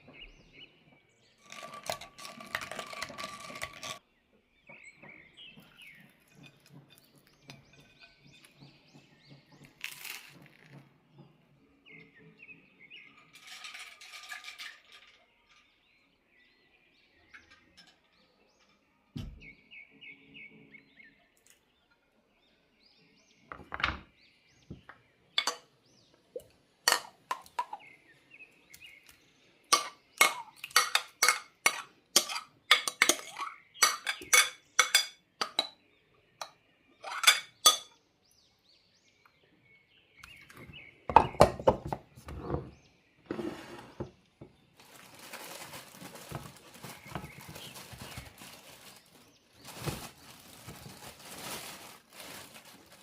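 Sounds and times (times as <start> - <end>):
dishes and cutlery clinking: 6.0 - 8.7, 25.4 - 25.7, 26.9 - 27.8, 29.7 - 35.8, 36.4 - 38.0.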